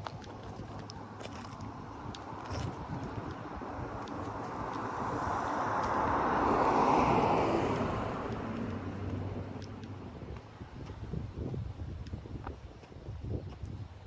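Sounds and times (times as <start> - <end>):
car driving past: 4.4 - 9.6.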